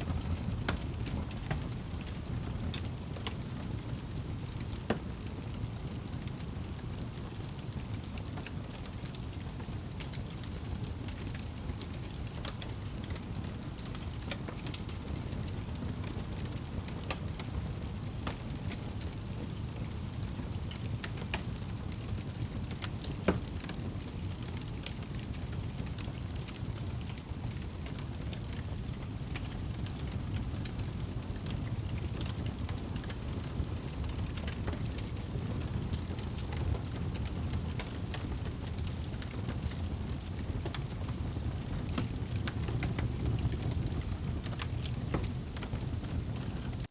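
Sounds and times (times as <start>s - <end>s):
rain rumbling: 0.0s - 46.9s
wood fire crackling and popping: 0.0s - 46.9s.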